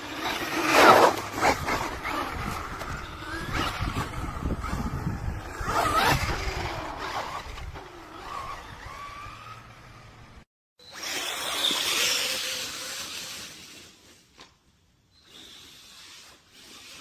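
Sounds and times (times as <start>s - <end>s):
electric motor whining: 0.0s - 10.3s.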